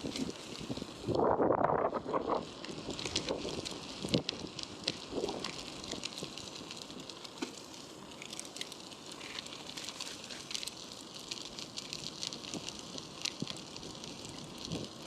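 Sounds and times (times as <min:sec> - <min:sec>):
wind rumble on microphone: 0:00.0 - 0:07.1, 0:11.4 - 0:15.0
bicycle tyres on road: 0:00.0 - 0:15.0
small ticks and crackles: 0:00.0 - 0:15.0.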